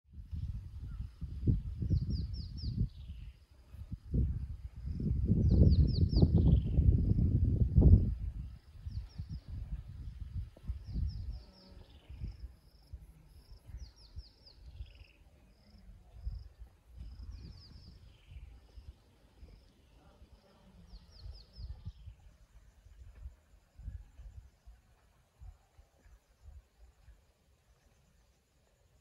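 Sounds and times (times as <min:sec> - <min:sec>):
birds singing: 0:13.5 - 0:16.4, 0:17.0 - 0:22.8.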